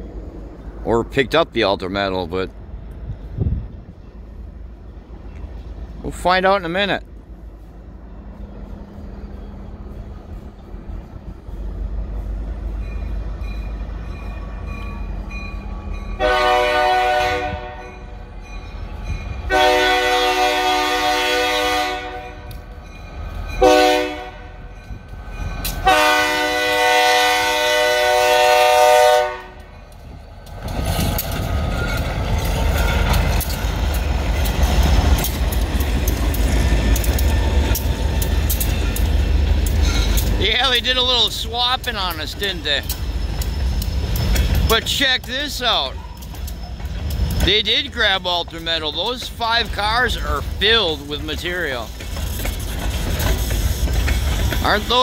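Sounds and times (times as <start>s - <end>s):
locomotive engine rumbling: 0.0s - 55.0s
locomotive horn blasts: 16.2s - 18.2s, 19.4s - 22.6s, 23.6s - 24.7s, 25.8s - 29.7s
train wheels clicking: 29.4s - 55.0s.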